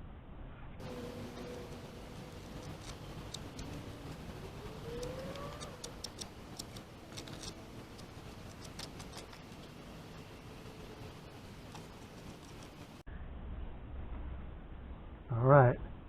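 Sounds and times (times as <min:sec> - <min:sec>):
brief rising whine: 0:00.0 - 0:06.0
low steady background: 0:00.0 - 0:16.0
hand tool clicks and ticks: 0:05.0 - 0:09.4.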